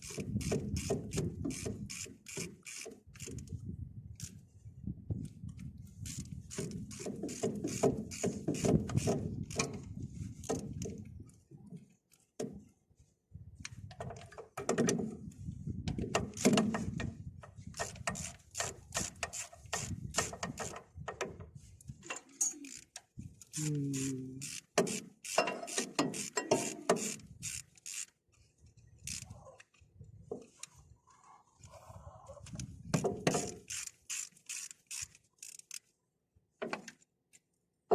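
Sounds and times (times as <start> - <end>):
hand tools clicking and scraping metal: 6.0 - 11.0, 15.9 - 28.2.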